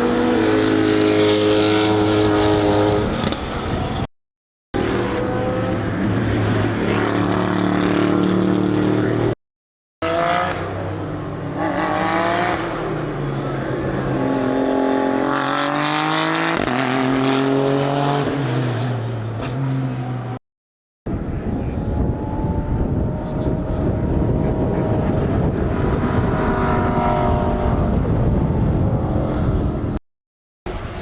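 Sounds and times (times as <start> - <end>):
race car engines accelerating: 4.8 - 9.4, 10.0 - 20.4, 21.1 - 30.0.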